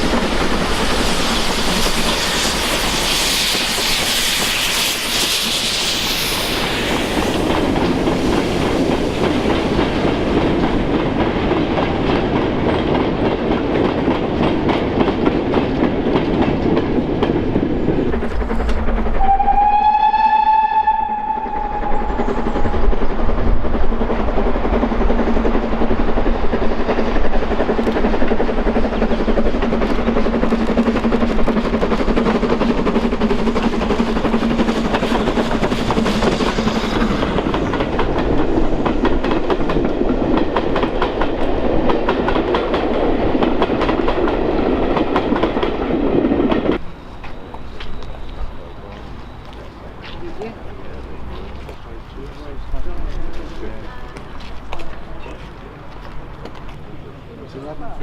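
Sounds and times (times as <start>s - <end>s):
wheels on rails: 0.0s - 58.0s
steam train whistle: 19.1s - 22.8s.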